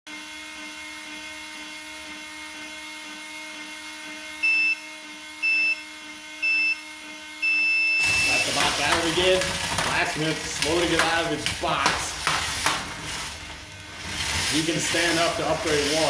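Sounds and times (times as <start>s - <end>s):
steady electric hum: 0.2s - 16.0s
electronic countdown beeps: 4.4s - 4.8s, 5.4s - 5.8s, 6.4s - 6.8s, 7.4s - 8.4s.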